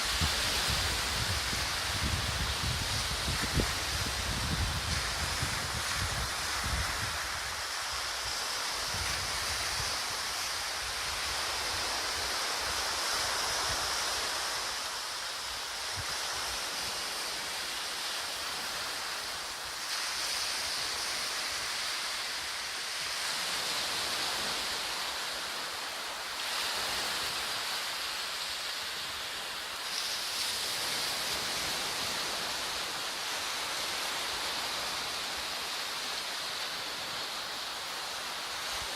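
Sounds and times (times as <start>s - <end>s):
wind buffeting microphone: 0.0s - 7.6s
surf on a beach: 0.0s - 38.9s
wind hissing: 0.0s - 38.9s.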